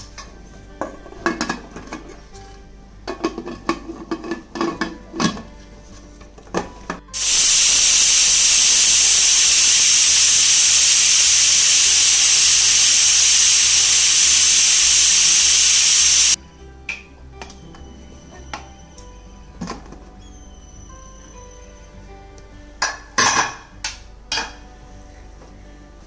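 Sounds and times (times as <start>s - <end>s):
pressure cooker whistle hissing: 7.2s - 16.4s.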